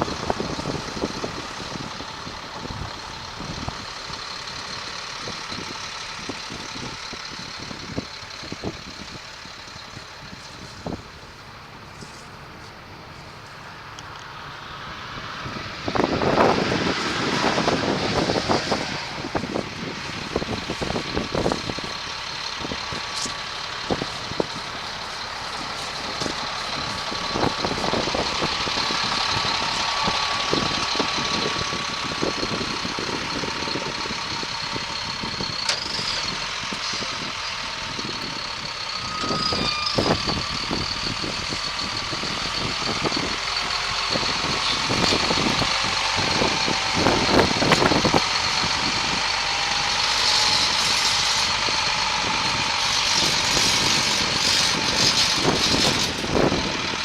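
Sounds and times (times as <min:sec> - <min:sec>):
truck diesel engine running: 0:00.0 - 0:57.0
high-pitched whine: 0:38.1 - 0:43.6.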